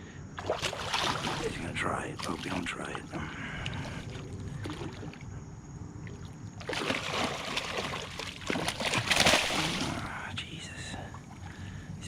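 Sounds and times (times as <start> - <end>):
low wind rumble: 0.0 - 8.4
fish splashing in water: 0.4 - 2.6, 3.6 - 5.3, 6.0 - 10.2.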